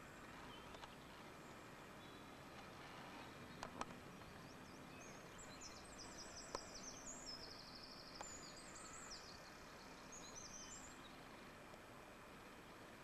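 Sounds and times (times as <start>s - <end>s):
songbird chirping and trilling: 0.0s - 11.6s
low steady hiss: 0.0s - 13.0s
faint clicks: 0.6s - 1.0s, 3.5s - 4.4s, 6.4s - 6.8s, 8.1s - 8.4s, 11.6s - 11.9s.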